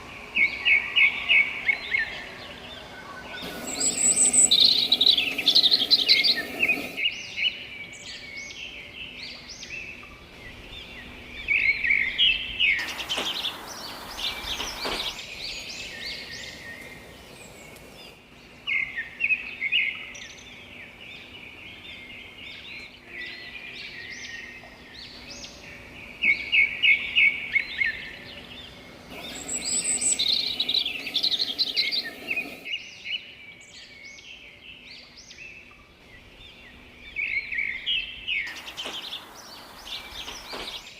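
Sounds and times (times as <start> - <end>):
songbirds chirping: 0.0 - 40.9
rushing hiss: 3.3 - 7.3, 12.6 - 18.2, 29.1 - 32.8, 38.5 - 40.9.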